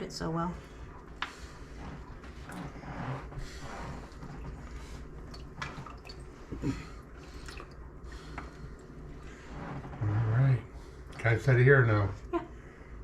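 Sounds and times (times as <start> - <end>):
juices dripping into a container: 3.7 - 9.9.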